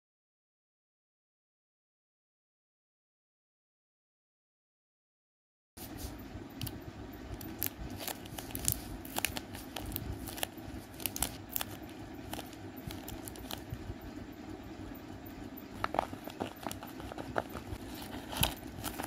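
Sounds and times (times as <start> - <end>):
paper and tape crinkling: 7.4 - 13.7, 15.8 - 19.0.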